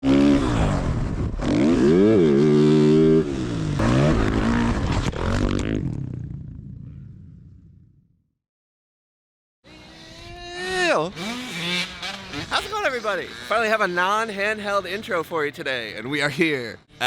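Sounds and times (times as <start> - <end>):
dirt bike engine revving: 0.0 - 6.4, 9.6 - 15.2.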